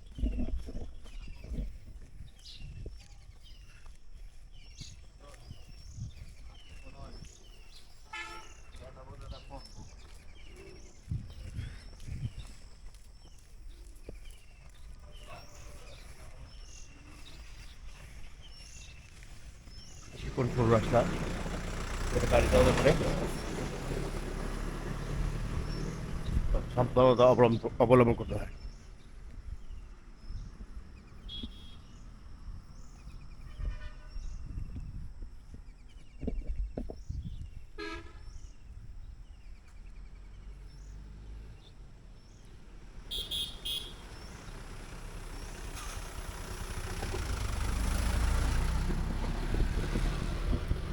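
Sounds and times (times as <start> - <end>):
birds chirping: 0.0 - 50.9
low outdoor rumble: 15.0 - 33.6
bird calling: 43.1 - 48.4.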